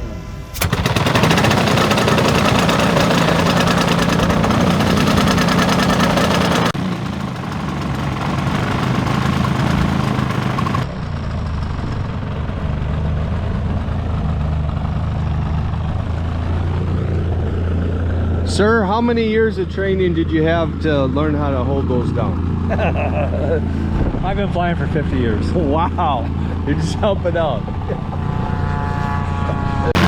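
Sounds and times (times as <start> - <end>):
model airplane engine running: 0.6 - 10.9, 27.6 - 30.0.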